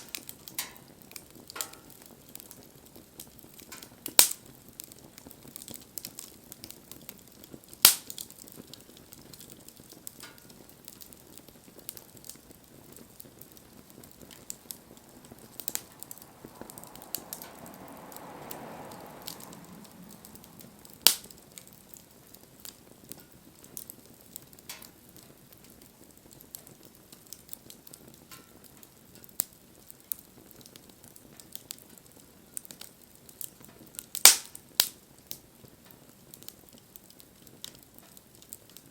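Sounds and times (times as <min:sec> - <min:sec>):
wood fire crackling: 0:00.0 - 0:38.9
soft hiss: 0:12.0 - 0:23.2.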